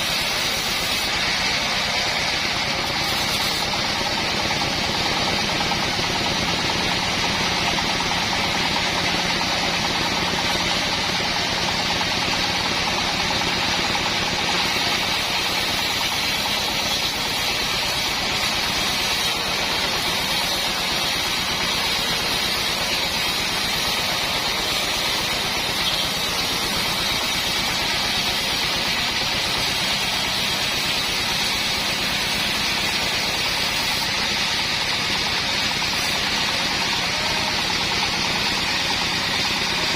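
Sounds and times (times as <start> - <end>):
bandsaw mill running: 0.0 - 39.9.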